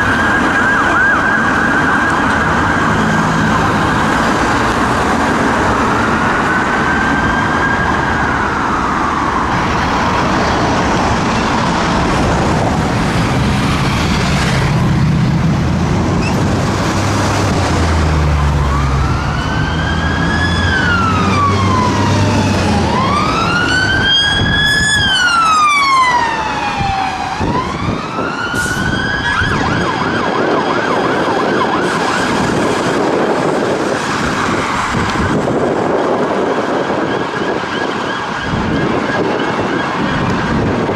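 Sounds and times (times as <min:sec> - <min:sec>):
police siren wailing: 0:00.0 - 0:40.9
road traffic noise: 0:00.0 - 0:40.9
engine rumbling: 0:08.2 - 0:30.0.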